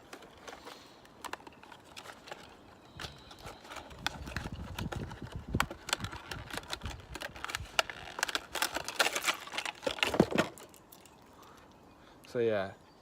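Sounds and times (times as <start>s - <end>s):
plastic packaging crackling: 0.0s - 11.3s.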